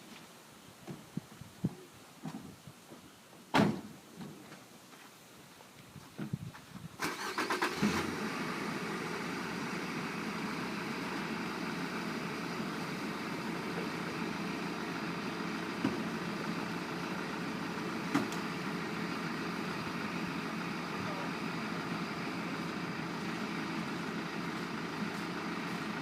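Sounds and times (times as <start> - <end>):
fire engine motor running: 7.0 - 26.0.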